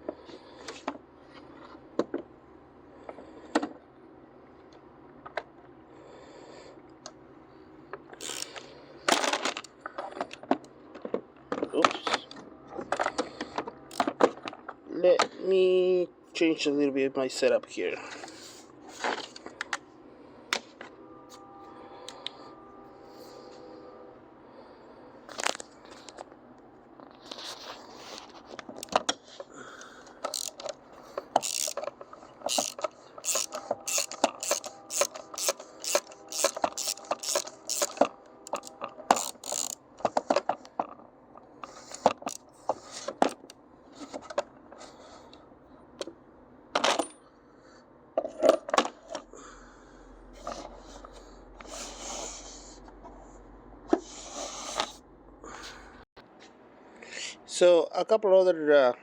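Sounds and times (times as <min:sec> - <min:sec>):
metal tools clinking and scraping: 0:30.2 - 0:39.8.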